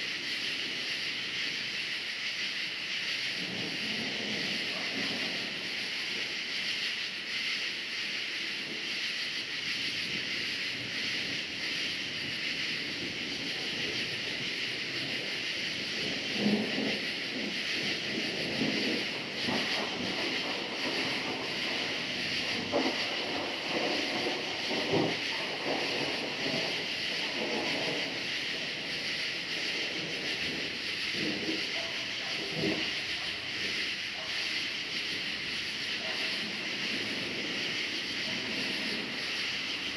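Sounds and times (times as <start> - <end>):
crickets chirping: 0.0 - 39.9
distant thunder rumbling: 3.4 - 5.8, 12.7 - 39.9.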